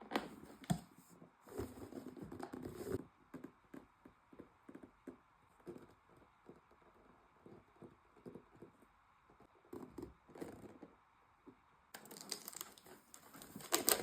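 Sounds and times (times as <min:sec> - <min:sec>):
packaging rustling: 0:12.0 - 0:14.0.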